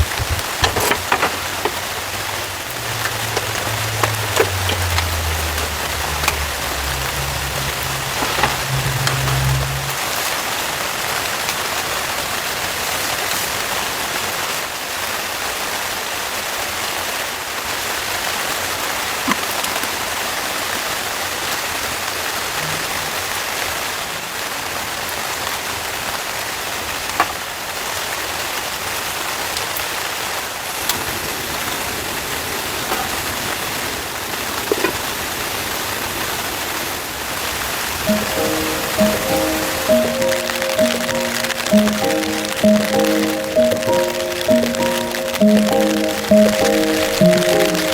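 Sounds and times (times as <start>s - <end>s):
heavy rain on a tent roof: 0.0s - 47.9s.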